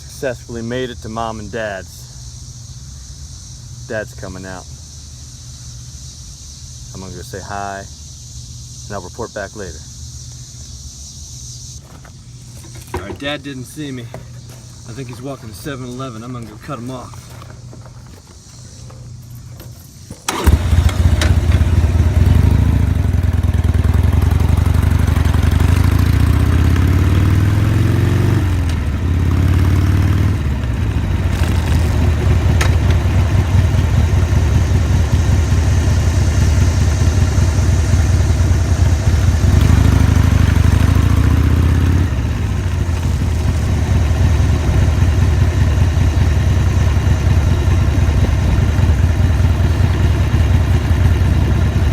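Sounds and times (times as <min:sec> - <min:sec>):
motorcycle engine starting: 0:11.4 - 0:51.9
motorcycle accelerating: 0:14.2 - 0:51.9.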